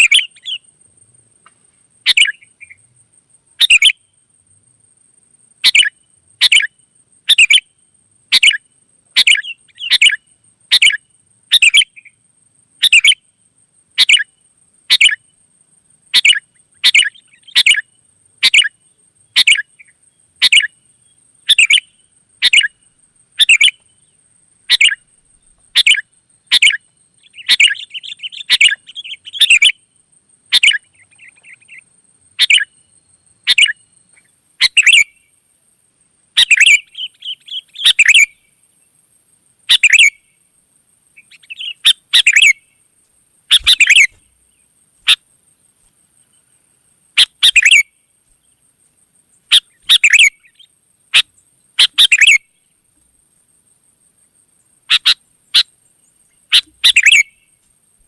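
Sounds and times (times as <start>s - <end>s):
bird chattering: 0.0s - 0.6s, 2.1s - 2.8s, 3.6s - 3.9s, 16.2s - 17.8s, 21.5s - 22.8s, 23.4s - 23.8s, 24.7s - 25.0s, 25.8s - 29.7s, 30.5s - 31.8s, 32.4s - 32.7s, 34.6s - 35.1s, 36.4s - 38.3s, 39.7s - 40.2s, 41.2s - 42.6s, 43.5s - 44.3s, 47.2s - 47.8s, 49.5s - 52.4s, 54.9s - 55.7s, 56.5s - 57.3s
bird chirping: 0.0s - 0.8s, 1.4s - 2.9s, 3.5s - 4.2s, 5.6s - 7.7s, 8.3s - 12.2s, 12.8s - 13.3s, 14.0s - 15.4s, 16.1s - 35.3s, 36.3s - 39.0s, 39.6s - 40.4s, 41.1s - 42.8s, 43.5s - 48.7s, 49.3s - 52.7s, 54.9s - 57.6s.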